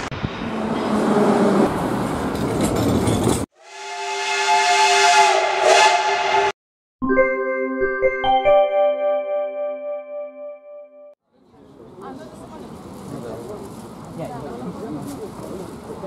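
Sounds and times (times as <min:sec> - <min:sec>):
steam locomotive whistle: 0:03.6 - 0:06.6
music with chime-like notes: 0:07.0 - 0:10.8.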